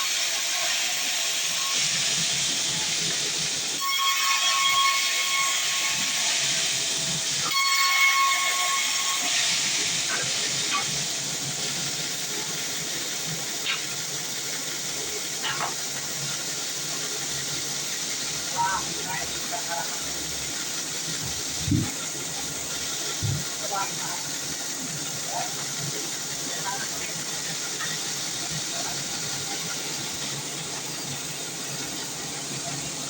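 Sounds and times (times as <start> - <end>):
high ringing saw whine: 3.8 - 11.7.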